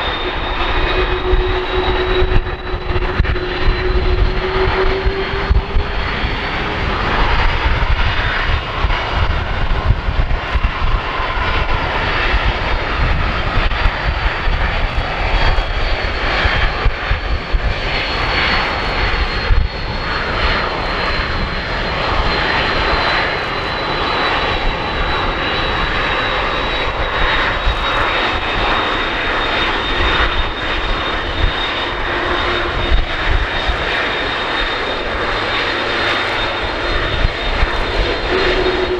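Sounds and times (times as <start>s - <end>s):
jet engine whine: 0.0s - 38.9s
jet engines roaring: 0.0s - 38.9s.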